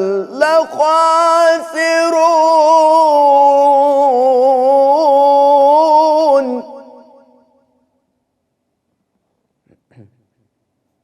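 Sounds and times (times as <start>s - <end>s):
man chanting recitation: 0.0s - 6.9s.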